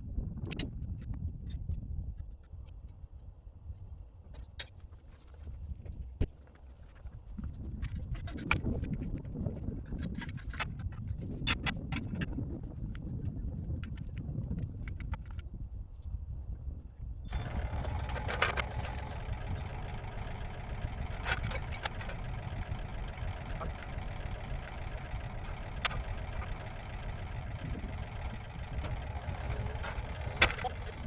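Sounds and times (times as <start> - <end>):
heavy equipment engine running: 17.3 - 31.0.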